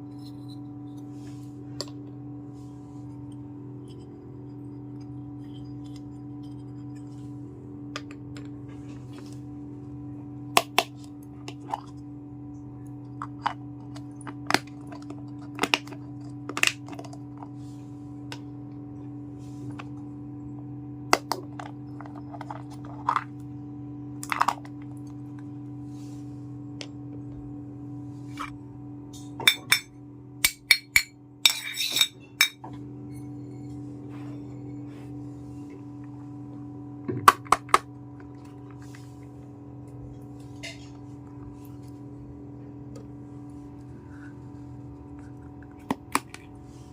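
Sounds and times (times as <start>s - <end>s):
low hum: 0.0s - 46.9s.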